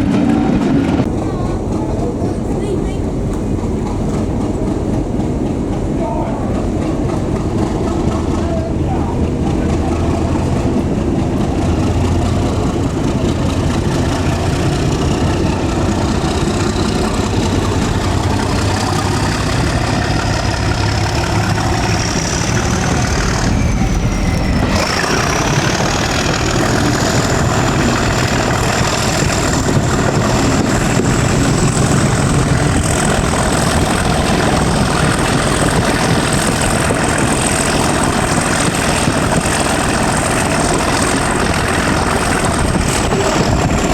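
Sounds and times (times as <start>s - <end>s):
diesel locomotive engine under load: 0.0s - 43.9s.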